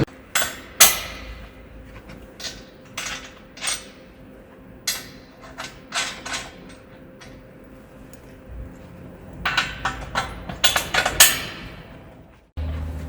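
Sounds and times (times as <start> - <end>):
metal tools clinking: 4.8 - 7.5, 8.1 - 12.1.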